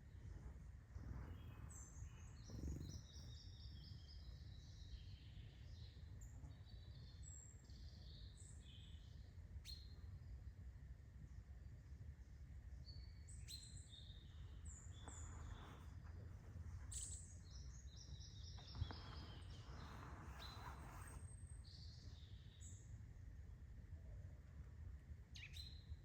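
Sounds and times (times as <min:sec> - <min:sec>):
faint low rumble: 0:00.0 - 0:09.2, 0:09.9 - 0:21.7
songbirds chirping and whistling: 0:00.1 - 0:10.0, 0:12.8 - 0:22.9.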